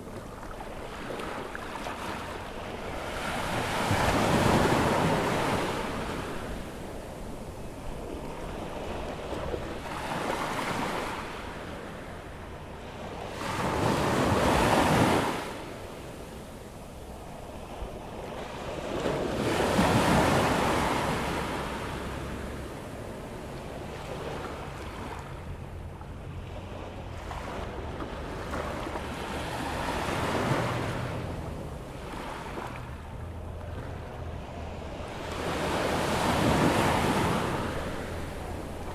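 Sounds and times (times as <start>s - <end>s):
waves breaking on sand: 0.0s - 12.0s, 26.4s - 38.9s.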